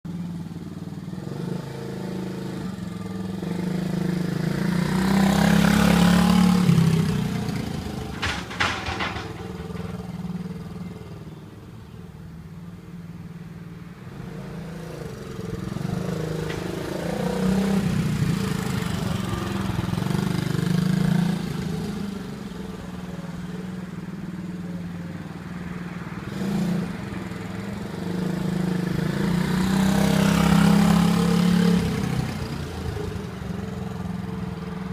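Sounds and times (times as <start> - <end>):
motorcycle engine revving: 0.9 - 10.4.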